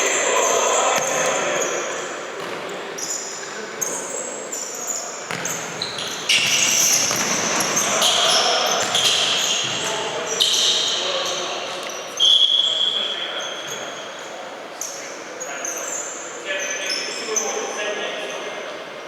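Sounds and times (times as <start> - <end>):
shoe squeaks on court: 2.4 - 14.2.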